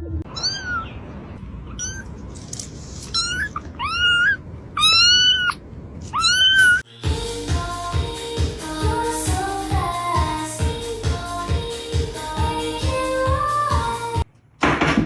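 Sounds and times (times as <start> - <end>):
cat meowing: 0.3 - 0.9, 1.7 - 2.1, 3.1 - 6.8.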